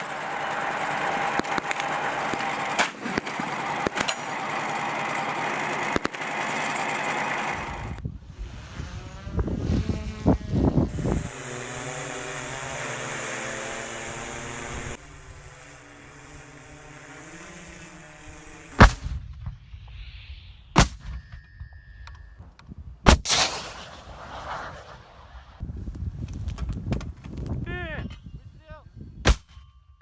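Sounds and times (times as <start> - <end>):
buzzing motor hum: 0.0 - 19.0.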